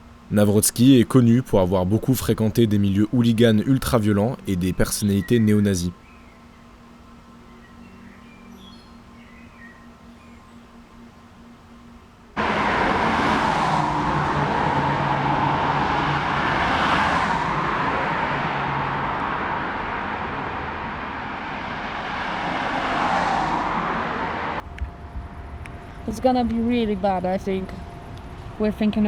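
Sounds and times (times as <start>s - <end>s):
road traffic rush: 0.0s - 8.4s, 12.3s - 29.0s
vehicles passing: 0.0s - 10.3s, 11.0s - 29.0s.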